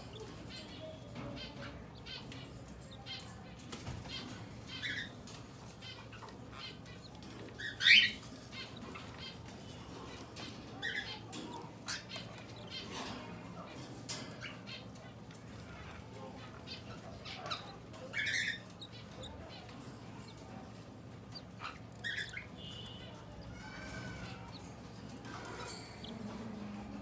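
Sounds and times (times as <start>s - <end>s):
bird chirps: 5.8s - 10.2s, 21.3s - 24.6s.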